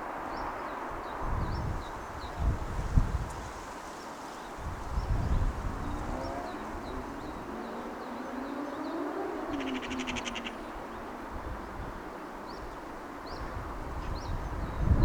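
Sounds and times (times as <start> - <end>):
small birds chirping: 4.0 - 11.8.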